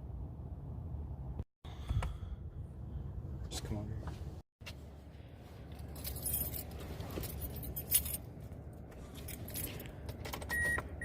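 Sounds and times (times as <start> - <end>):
car keys jangling: 5.7 - 8.3, 9.0 - 10.6
car warning chime beep: 10.5 - 10.9.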